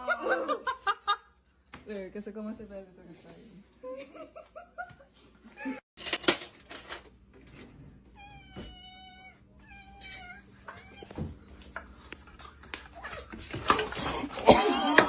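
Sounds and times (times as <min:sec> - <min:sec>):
cat meowing: 0:08.2 - 0:11.2.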